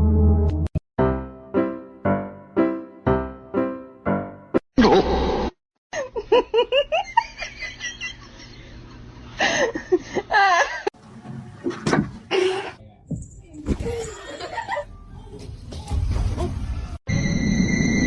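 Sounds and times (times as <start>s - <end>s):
person laughing: 6.0s - 10.9s.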